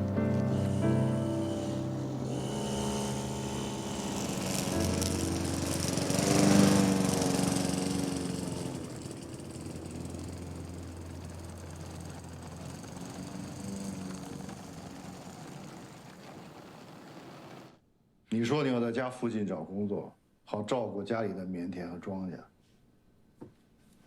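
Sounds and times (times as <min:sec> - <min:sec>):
small engine running: 0:00.0 - 0:17.8.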